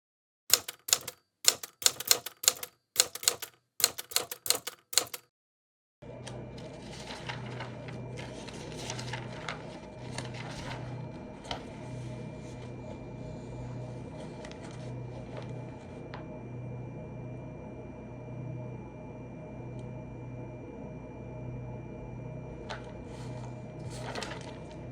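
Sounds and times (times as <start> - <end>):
typewriter-like keystrokes: 0.5 - 5.3.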